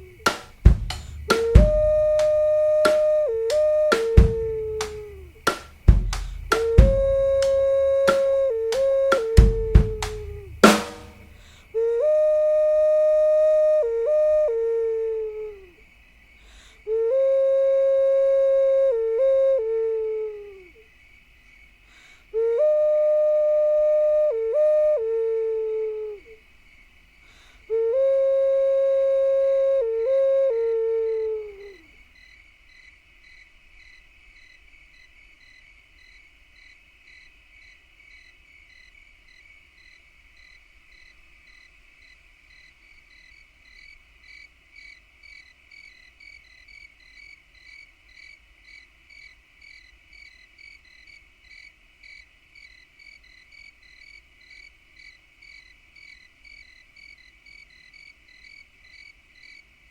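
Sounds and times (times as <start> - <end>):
flute-like note sliding down: 0.0 - 15.2
insects chirping: 0.0 - 59.9.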